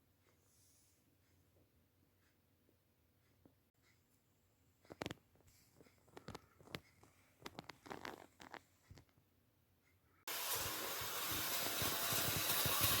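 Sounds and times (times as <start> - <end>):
handling clicks and rustles: 4.8 - 9.2
model locomotive whirring: 10.3 - 13.0.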